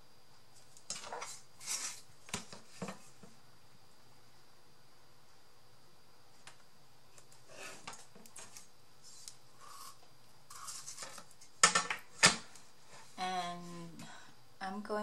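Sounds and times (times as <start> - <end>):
paper rustling: 0.6 - 3.1, 7.5 - 11.5.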